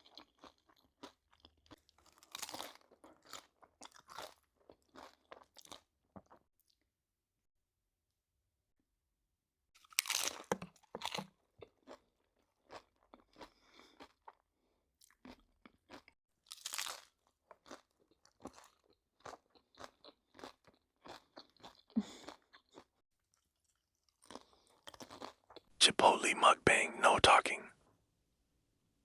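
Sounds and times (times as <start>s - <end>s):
chewing crunchy food: 0.0s - 6.8s, 9.8s - 25.7s.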